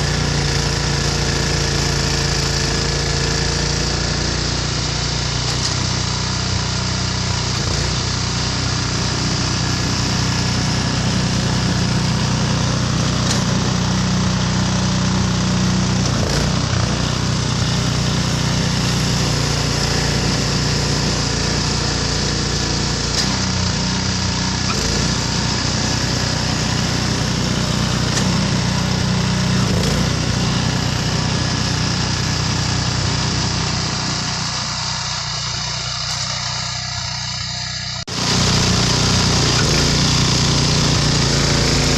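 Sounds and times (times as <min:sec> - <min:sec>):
snowblower engine running: 0:00.0 - 0:41.9.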